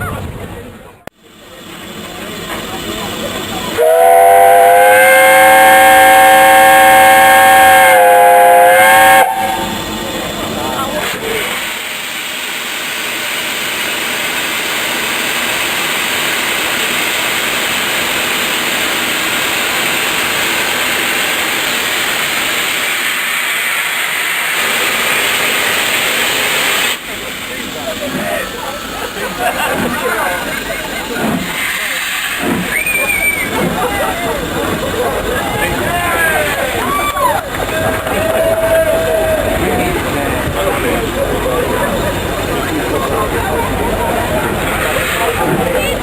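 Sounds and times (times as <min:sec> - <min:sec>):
steam hissing: 0:01.2 - 0:46.0
steam locomotive whistle: 0:03.8 - 0:09.8, 0:32.6 - 0:33.7.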